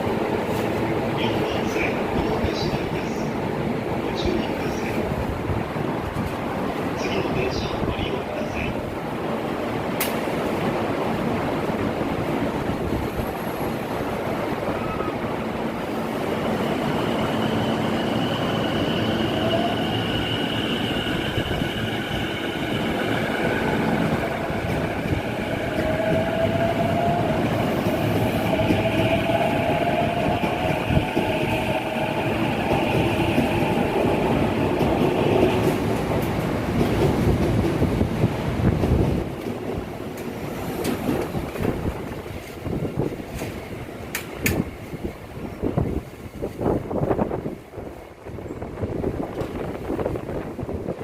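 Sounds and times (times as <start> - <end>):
train wheels rumbling on rail: 0.0 - 51.0
wind buffeting microphone: 18.0 - 51.0.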